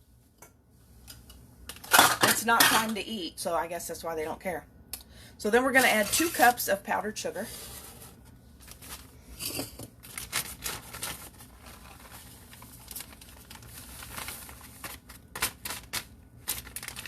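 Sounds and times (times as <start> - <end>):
plastic bag crinkling: 7.8 - 17.0.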